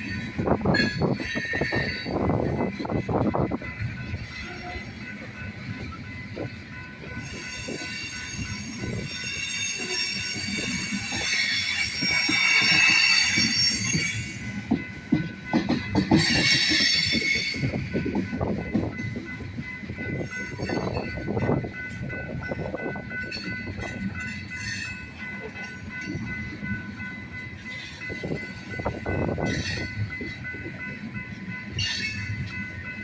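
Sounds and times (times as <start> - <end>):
metallic wheel squeal: 0.0 - 2.3, 7.1 - 14.6, 16.2 - 17.9
train wheels clattering over rails: 7.1 - 26.7.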